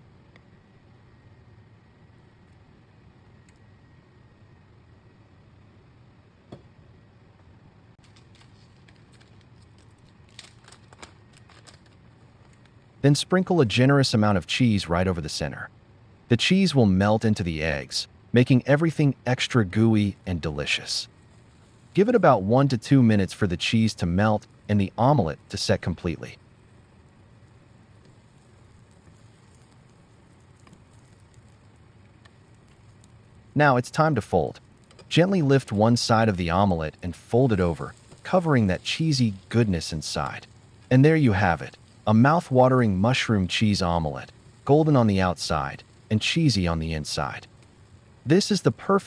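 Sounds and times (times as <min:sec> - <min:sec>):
small crackles: 0:08.0 - 0:13.0, 0:20.0 - 0:49.0
omelette sizzling in frying pan: 0:20.0 - 0:49.0.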